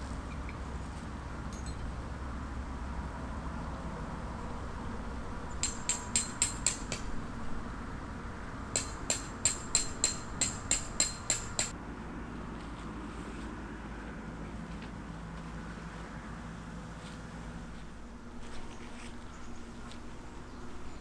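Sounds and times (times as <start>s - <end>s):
hammer striking metal: 5.6s - 7.2s, 8.7s - 11.8s.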